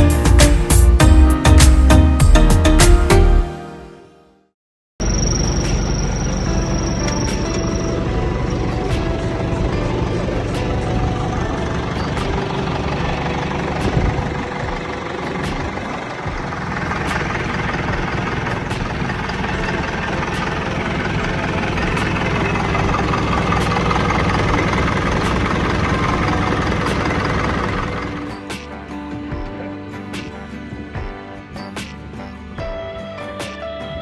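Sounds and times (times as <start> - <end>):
diesel engine idling: 7.7 - 28.3.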